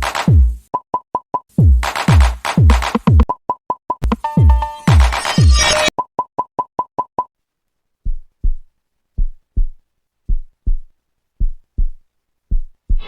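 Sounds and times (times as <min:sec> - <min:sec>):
low heartbeat thumping: 0:01.6 - 0:03.3, 0:08.0 - 0:13.0.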